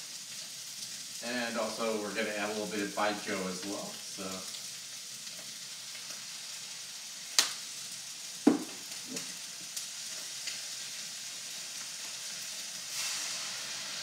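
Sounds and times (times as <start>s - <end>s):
food sizzling in a wok: 0.0s - 14.0s
stirring knocks and clicks: 8.5s - 9.3s.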